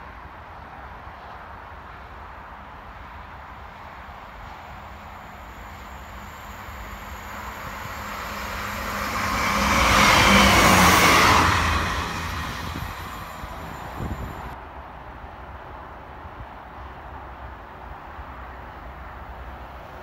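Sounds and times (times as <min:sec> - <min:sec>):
diesel train passing: 0:03.0 - 0:14.6.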